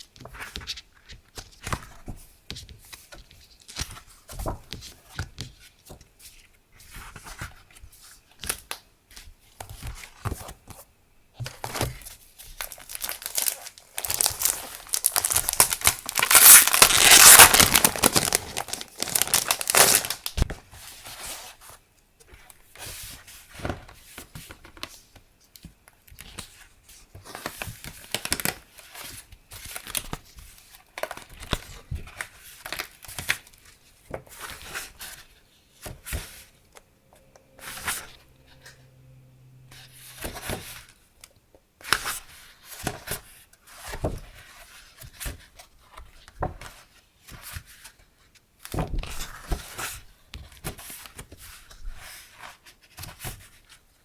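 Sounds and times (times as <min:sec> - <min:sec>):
paper rustling and crinkling: 0:11.5 - 0:25.0.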